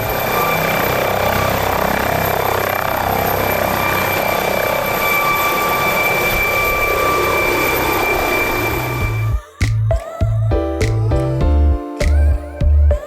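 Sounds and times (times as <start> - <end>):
aircraft engine rushing and whining: 0.0 - 9.4.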